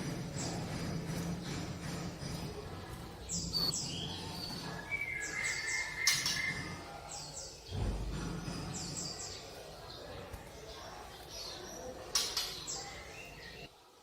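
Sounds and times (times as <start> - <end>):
bird singing falling notes: 3.2 - 13.7.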